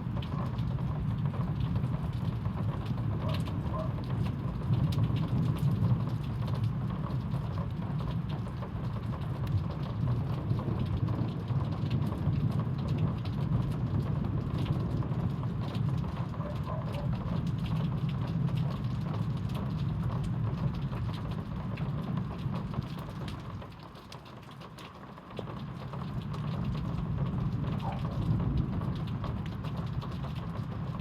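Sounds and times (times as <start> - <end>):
heavy rain downpour: 0.0 - 31.0
rain drop ticks: 0.0 - 31.0.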